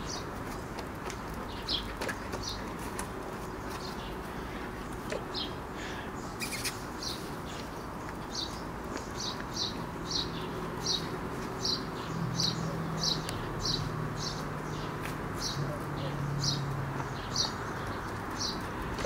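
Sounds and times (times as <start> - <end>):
small bird chirping: 6.2 - 19.0.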